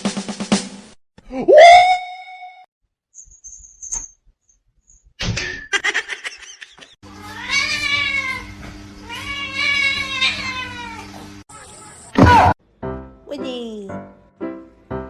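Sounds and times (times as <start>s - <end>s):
cat meowing: 7.2s - 12.0s.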